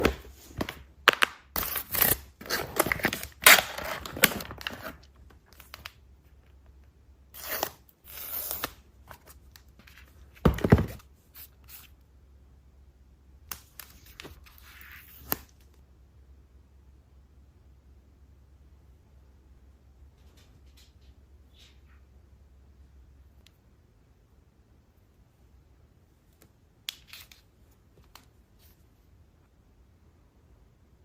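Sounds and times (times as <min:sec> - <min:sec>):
packaging tearing and crinkling: 0:01.1 - 0:05.0.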